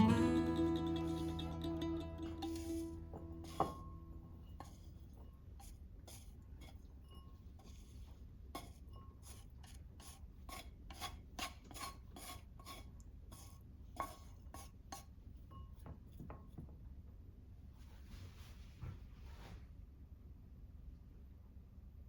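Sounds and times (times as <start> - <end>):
kitchen utensil scraping food: 0.4 - 15.2.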